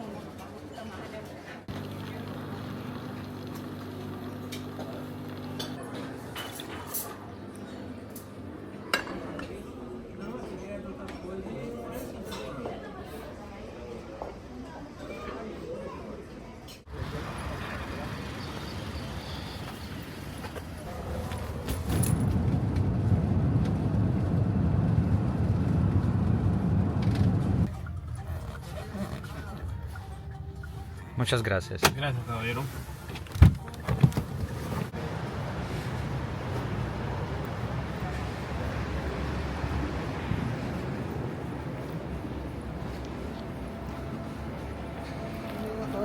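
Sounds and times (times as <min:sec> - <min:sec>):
road and engine rumble: 0:16.9 - 0:30.7, 0:32.8 - 0:46.0.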